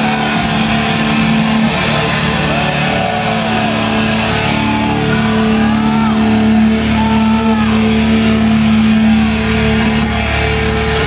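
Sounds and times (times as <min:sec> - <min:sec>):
heavy metal band playing: 0:00.0 - 0:11.0
cymbal crashes: 0:09.4 - 0:11.0.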